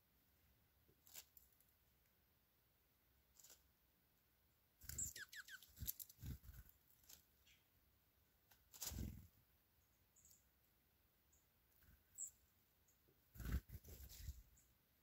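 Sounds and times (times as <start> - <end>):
bird chirps: 4.8 - 5.9, 9.9 - 10.5, 11.3 - 13.1.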